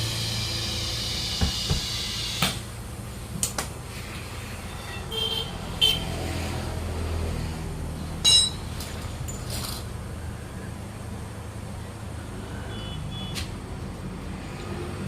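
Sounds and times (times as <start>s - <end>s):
sharp knocks and clanks: 1.4s - 2.6s
short high ringing tones: 8.2s - 8.7s.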